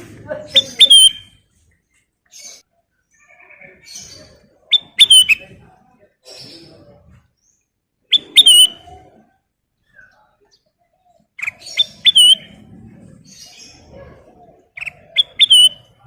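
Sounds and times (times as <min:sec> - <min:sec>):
soft bird calls: 0:00.5 - 0:16.0
bird singing whistled phrases: 0:00.6 - 0:01.4, 0:04.7 - 0:05.4, 0:08.1 - 0:08.9, 0:11.4 - 0:12.6, 0:14.8 - 0:16.0.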